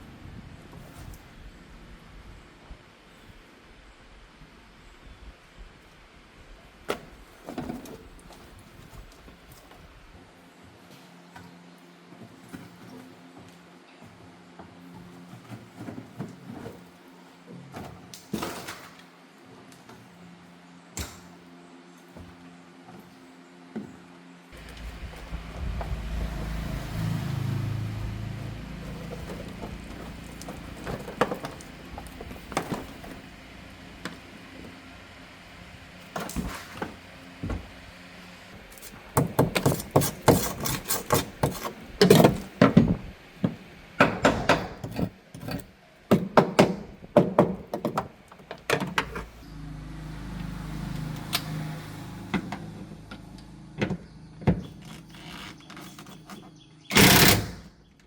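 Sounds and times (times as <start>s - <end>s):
low rumble: 24.6s - 30.8s
tools and car parts clattering: 28.2s - 33.3s, 38.8s - 49.4s.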